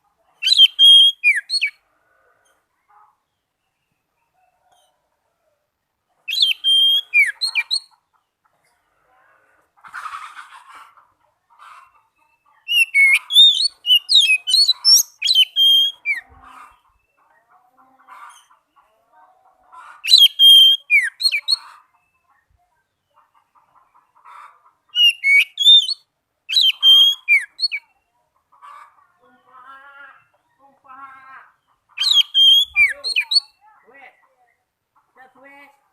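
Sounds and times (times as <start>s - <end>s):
bird singing whistled phrases: 0.4s - 1.7s, 6.3s - 7.9s, 12.7s - 16.2s, 20.1s - 21.6s, 25.0s - 27.8s, 32.0s - 33.6s.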